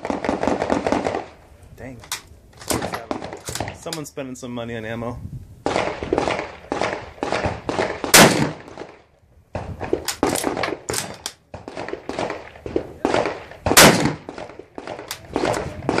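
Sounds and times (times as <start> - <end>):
gunfire from several guns: 0.0 - 1.3, 5.6 - 9.0, 11.5 - 16.0.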